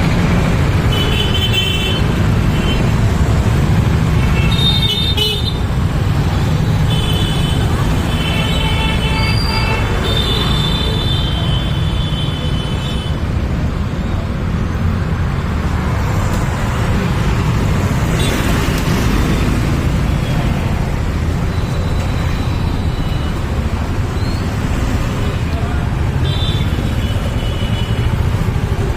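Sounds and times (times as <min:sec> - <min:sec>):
road traffic rumble: 0:00.0 - 0:28.9.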